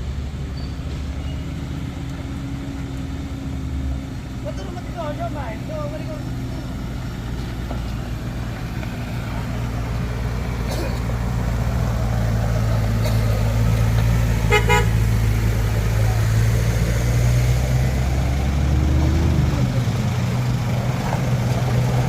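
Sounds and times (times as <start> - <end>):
heavy vehicle engines running: 0.0 - 22.0
vehicle horn toot: 14.4 - 15.0.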